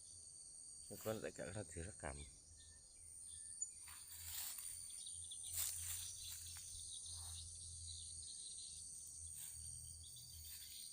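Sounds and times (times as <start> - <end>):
insects chirring: 0.0 - 10.9
rustling or scuffing: 3.8 - 6.8.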